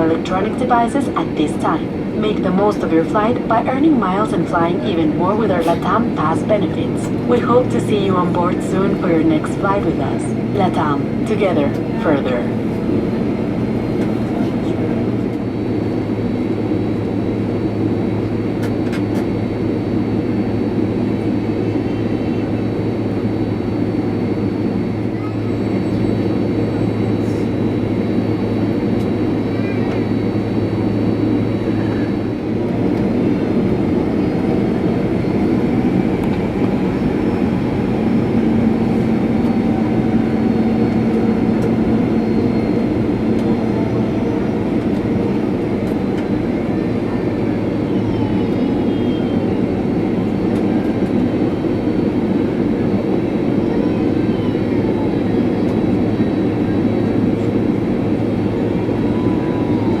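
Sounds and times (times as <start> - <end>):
steady low hum: 0.0 - 53.8
jet engines rumbling: 0.0 - 60.0.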